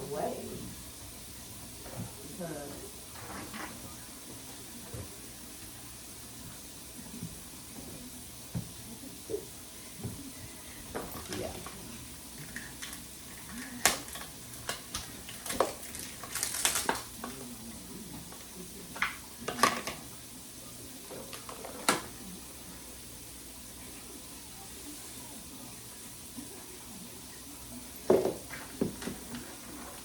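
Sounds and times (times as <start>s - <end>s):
groceries being handled: 9.9s - 20.1s.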